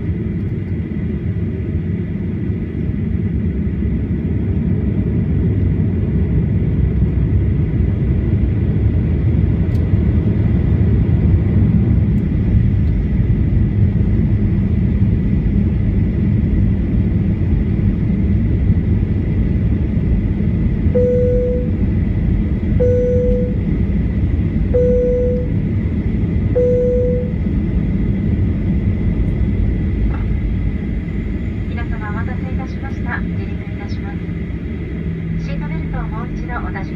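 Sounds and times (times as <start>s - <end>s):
jet engines rumbling: 0.0s - 36.9s
thin steady whine: 20.9s - 21.9s, 22.7s - 23.8s, 24.7s - 25.6s, 26.5s - 27.5s
short even beeps: 21.0s - 21.8s, 22.8s - 23.6s, 24.8s - 25.5s, 26.6s - 27.4s.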